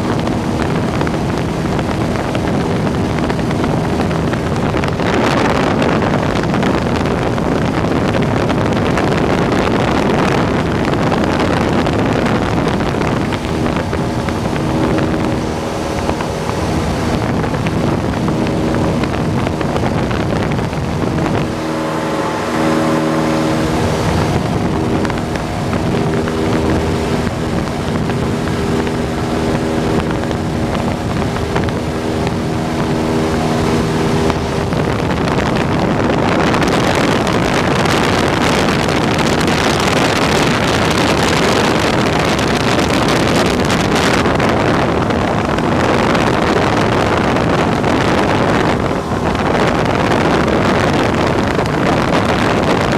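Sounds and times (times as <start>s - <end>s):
airplane engine and propeller: 0.0s - 52.9s
steady engine tones: 0.0s - 52.9s
wind rush: 0.0s - 52.9s.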